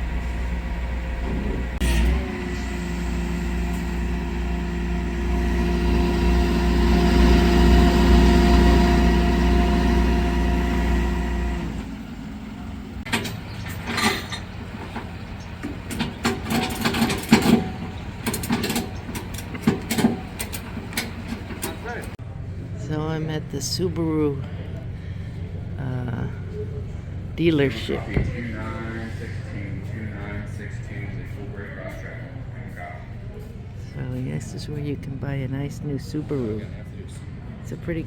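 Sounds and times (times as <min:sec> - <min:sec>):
vehicle engine rumbling: 0:00.0 - 0:38.0
irregular clicks and knocks: 0:13.1 - 0:22.2.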